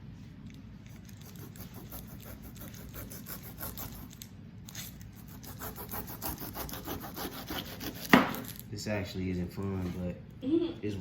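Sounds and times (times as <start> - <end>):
knife rasping through pineapple skin: 1.0 - 8.6.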